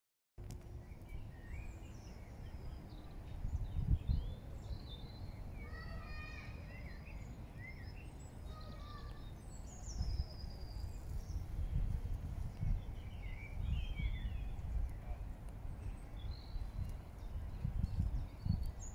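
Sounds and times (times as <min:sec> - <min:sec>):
birds chirping and whistling: 0:00.8 - 0:18.9
low microphone rumble: 0:08.2 - 0:18.9.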